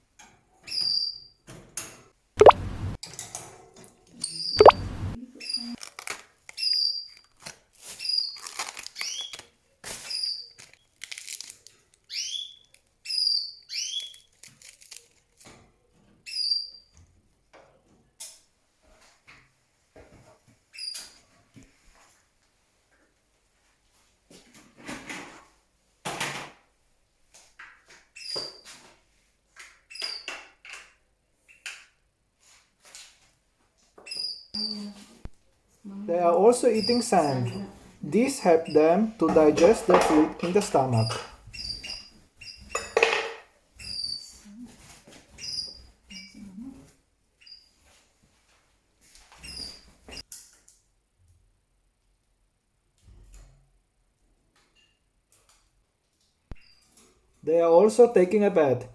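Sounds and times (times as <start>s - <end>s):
canaries chirping: 0.7s - 1.4s, 2.4s - 3.0s, 4.3s - 5.8s, 12.1s - 14.2s, 36.1s - 42.7s, 45.3s - 46.5s.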